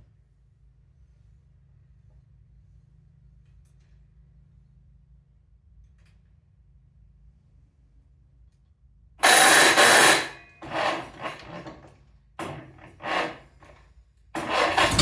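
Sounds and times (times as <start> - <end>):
engine running: 9.2 - 13.7, 14.4 - 15.0
engine cranked by starter: 9.2 - 13.8, 14.4 - 15.0.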